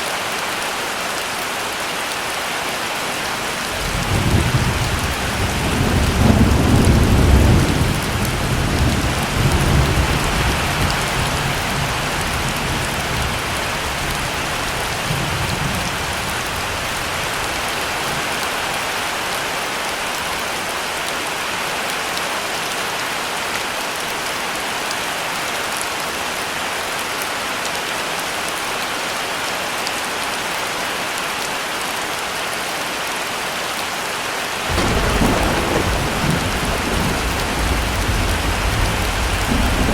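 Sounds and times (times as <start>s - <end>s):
heavy rain falling: 0.0s - 39.9s
thunder rumbling: 3.8s - 17.7s, 34.7s - 39.9s.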